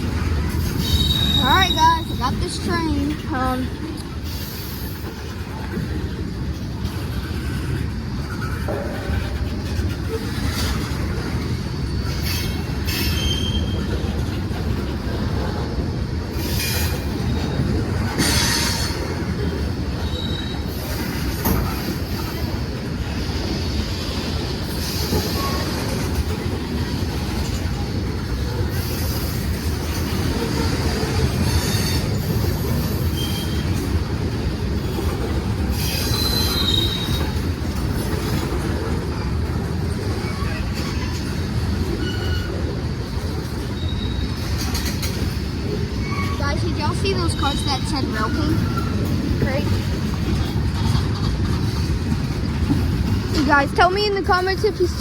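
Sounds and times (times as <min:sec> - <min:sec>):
clicks of wheels on rails: 0:00.0 - 0:55.0
train rumbling on track: 0:00.0 - 0:55.0
high-pitched wheel squeals: 0:00.8 - 0:02.2, 0:35.8 - 0:37.4.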